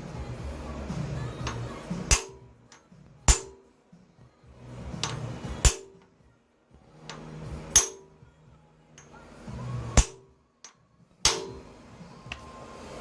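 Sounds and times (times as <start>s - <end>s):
hammer striking metal: 0.8s - 3.9s, 4.9s - 6.2s, 7.1s - 8.3s, 9.0s - 12.5s.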